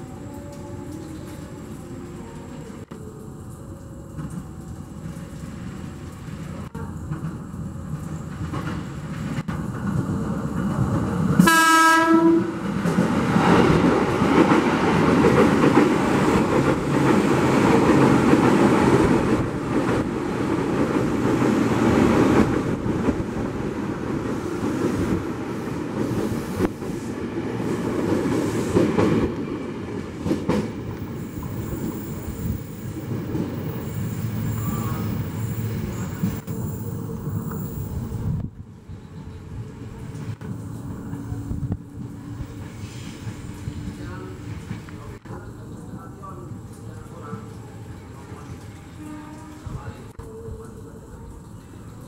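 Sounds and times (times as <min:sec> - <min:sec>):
train wheels rumbling on rails: 0:04.0 - 0:52.0
train horn blast: 0:11.4 - 0:12.6, 0:48.9 - 0:50.0.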